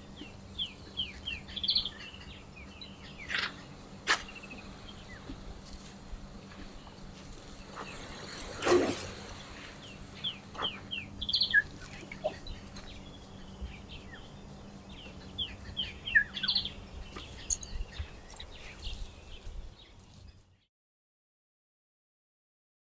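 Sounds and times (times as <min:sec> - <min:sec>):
faint low hum: 0:00.0 - 0:20.6
bird song of falling chirps: 0:06.8 - 0:20.7.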